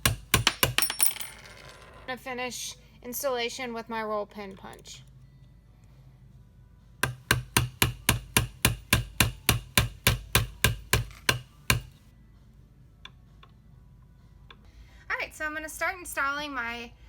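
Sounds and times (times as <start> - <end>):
hammer tapping metal punch: 0.0 - 1.3, 7.0 - 12.0.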